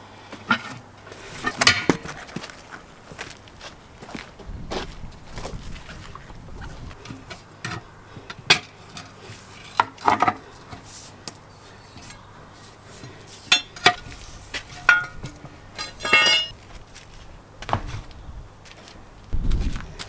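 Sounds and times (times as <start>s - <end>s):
metal tools clinking: 0.5s - 2.1s, 11.6s - 16.6s
ringing metallic clatter: 13.3s - 16.6s.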